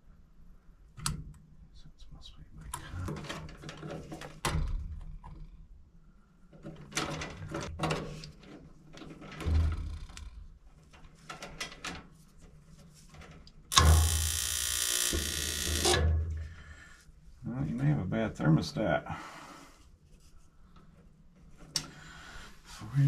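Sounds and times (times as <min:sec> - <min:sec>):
loud electrical buzz: 0:13.7 - 0:16.2.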